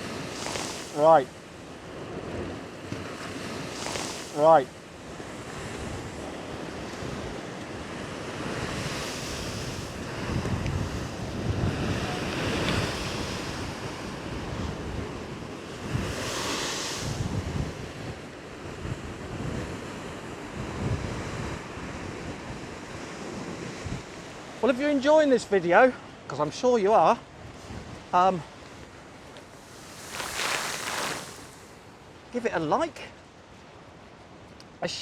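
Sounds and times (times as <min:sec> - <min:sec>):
wind buffeting microphone: 0:05.2 - 0:24.4
storm waves breaking against wall: 0:29.5 - 0:31.7.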